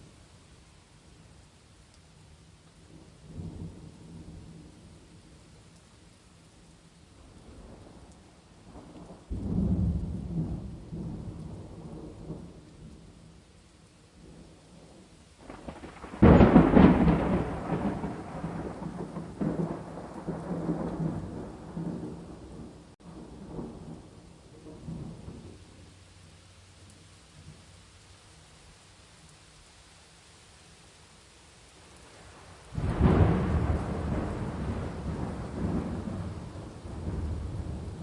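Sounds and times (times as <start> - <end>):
steady rain: 0.0 - 38.0
thunder rumbling: 7.2 - 13.2, 14.2 - 25.6, 32.1 - 38.0.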